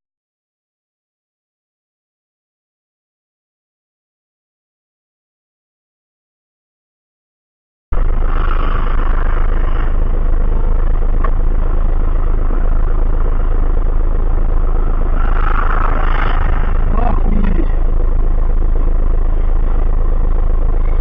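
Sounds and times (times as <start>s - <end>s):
car road and engine noise: 7.9s - 21.0s.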